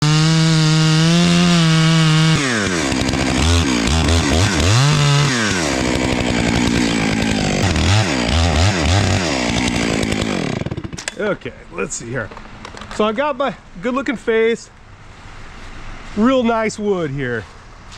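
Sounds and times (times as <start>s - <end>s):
chainsaw cutting wood: 0.0s - 11.2s.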